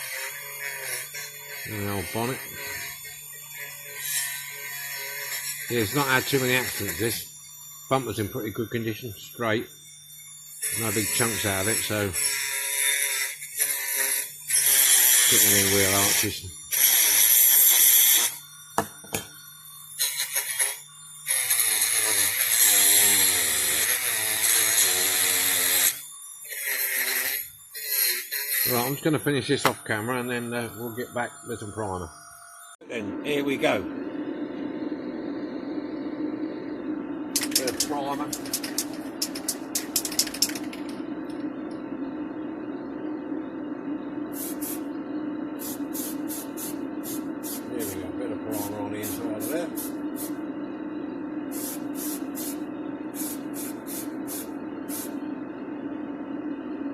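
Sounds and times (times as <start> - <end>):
rotary tool grinding metal: 0.0 - 19.2, 19.9 - 32.8, 37.4 - 41.0
steady low hum: 28.7 - 56.9
tool clicks: 37.4 - 41.4
aerosol spray can hissing: 44.4 - 44.8, 45.6 - 47.7, 49.0 - 50.4, 51.5 - 52.6, 53.2 - 55.2.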